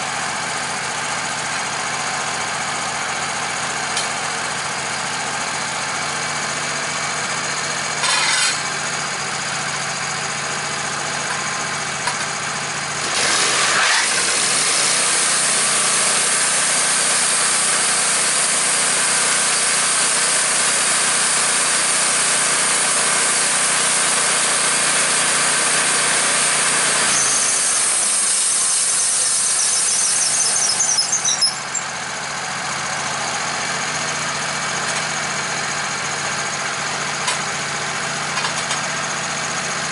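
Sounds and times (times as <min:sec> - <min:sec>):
saw whining through log: 0:04.5 - 0:09.8, 0:13.0 - 0:36.6
chainsaw engine: 0:12.0 - 0:39.5.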